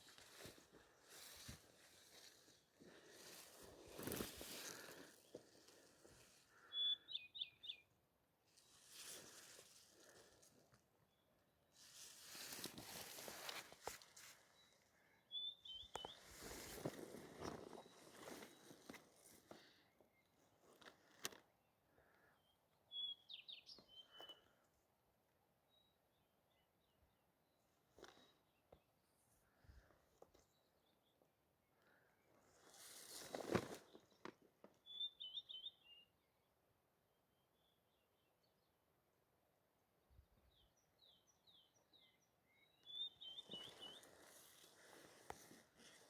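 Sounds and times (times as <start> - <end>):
songbird chirping: 0.0 - 8.0, 13.1 - 24.7, 33.2 - 36.5, 40.1 - 46.0
birds chirping: 6.5 - 7.9, 14.6 - 20.3, 41.2 - 46.0
rustling: 11.8 - 14.5, 32.7 - 34.1.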